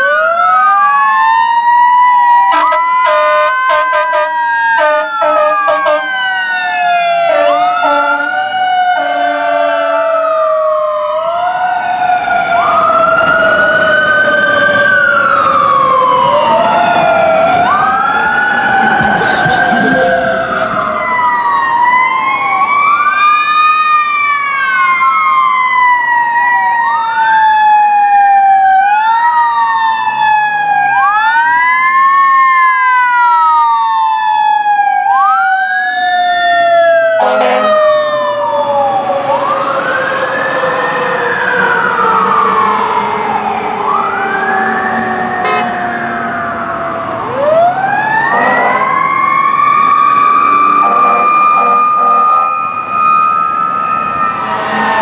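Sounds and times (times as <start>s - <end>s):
electronic siren wail: 0.0s - 55.0s
mechanical siren winding down: 0.5s - 23.6s, 31.1s - 51.6s, 52.4s - 55.0s
air horn blast: 2.5s - 6.2s, 7.2s - 10.4s, 37.2s - 38.3s, 45.4s - 45.8s, 48.3s - 48.9s, 50.8s - 52.5s.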